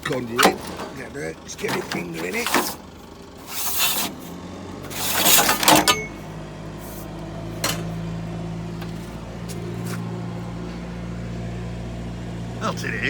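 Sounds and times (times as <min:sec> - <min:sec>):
cable rustling and scraping: 0:00.0 - 0:06.1, 0:06.7 - 0:08.1.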